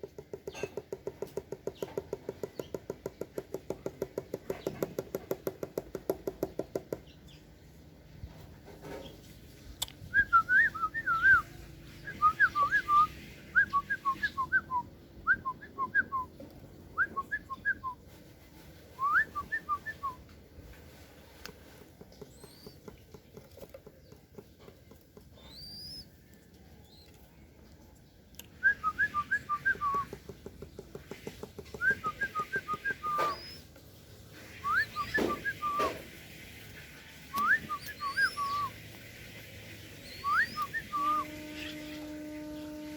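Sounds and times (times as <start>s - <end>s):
bird whistled chirps: 10.1s - 16.3s, 25.4s - 26.2s, 31.8s - 33.7s, 34.6s - 36.0s, 37.3s - 38.8s, 40.0s - 42.0s.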